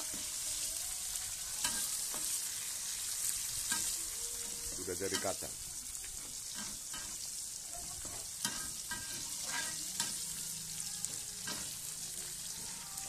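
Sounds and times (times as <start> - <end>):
nuts sizzling in hot oil: 0.0 - 13.0
metal spoon scraping pan: 8.4 - 10.4.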